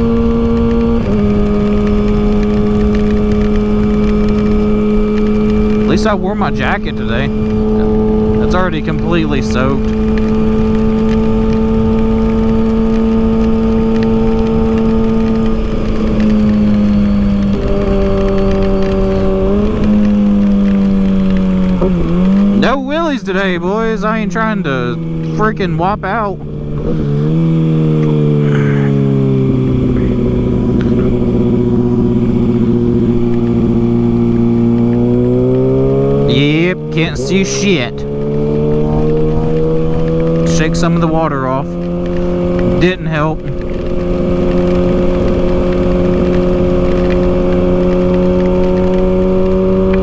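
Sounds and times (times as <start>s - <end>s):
low wind: 0.0s - 50.0s
motorcycle engine running: 0.0s - 50.0s
road rumble: 0.0s - 50.0s
wind noise: 26.4s - 50.0s.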